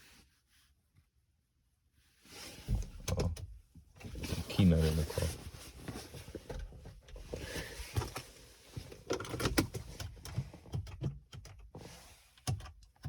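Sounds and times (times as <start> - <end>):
rustling of things handled: 3.9 - 10.6.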